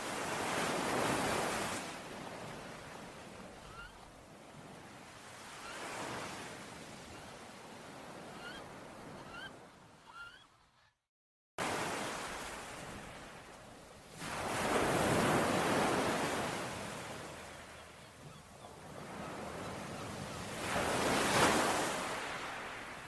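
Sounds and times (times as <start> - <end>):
sea waves washing onto shore: 11.6 - 17.9, 18.8 - 23.0.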